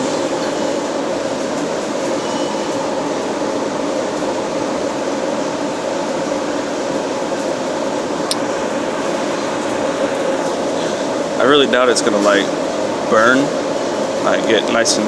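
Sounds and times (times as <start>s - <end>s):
whirring machine hum: 0.0s - 15.0s.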